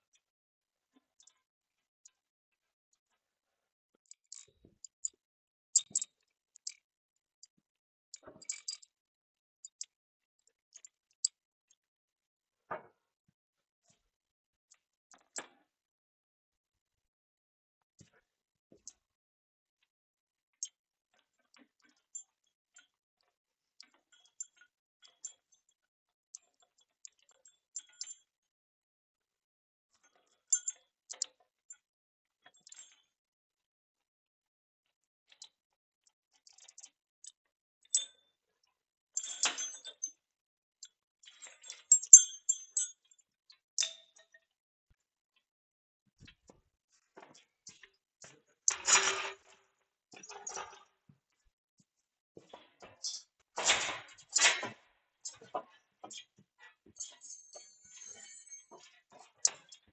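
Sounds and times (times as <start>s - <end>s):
light metal clicks and clinks: 39.2s - 40.1s, 41.9s - 43.0s.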